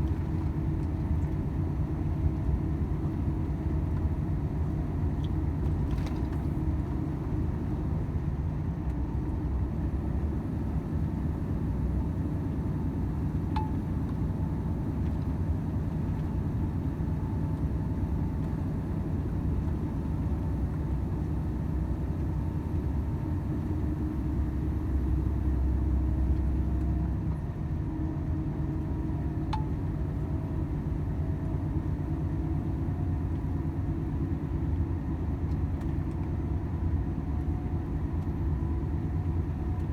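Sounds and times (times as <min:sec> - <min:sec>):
truck diesel engine droning: 0:09.1 - 0:34.3.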